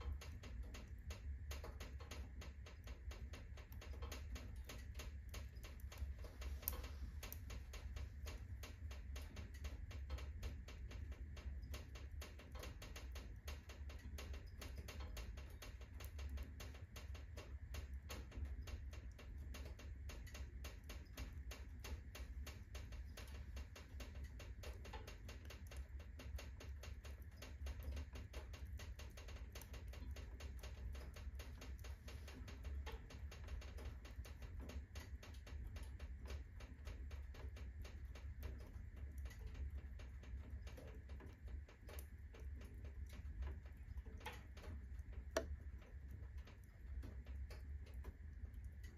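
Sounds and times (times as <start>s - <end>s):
fire crackling: 0.0s - 48.9s
low fire rumble: 0.0s - 48.9s.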